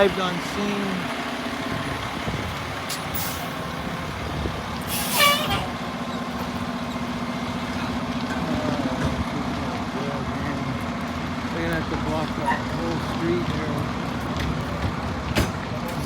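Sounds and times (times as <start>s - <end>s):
fire engine engine hum: 0.0s - 16.0s
air brakes hissing: 2.9s - 4.2s, 4.8s - 6.2s.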